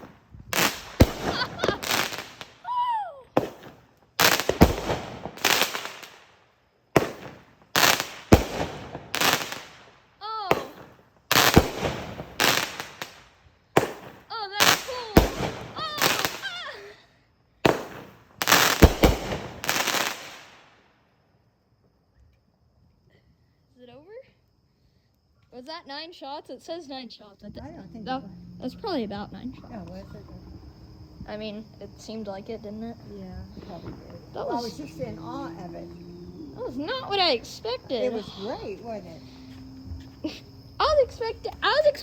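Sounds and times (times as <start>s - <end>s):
firework launch thumps: 0.0s - 2.6s, 3.4s - 6.2s, 7.0s - 9.8s, 10.5s - 13.2s, 13.8s - 16.5s, 17.6s - 20.6s, 33.2s - 34.8s
aerial firework bursts crackling: 0.0s - 2.7s, 3.4s - 16.8s, 17.6s - 20.9s
firework whistles: 0.0s - 16.9s, 17.6s - 20.9s.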